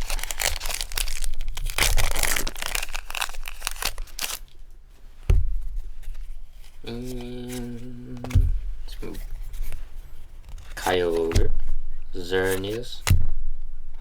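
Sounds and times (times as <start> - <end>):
wrapper torn and crinkled: 0.0 - 4.6
low thump: 5.3 - 5.9.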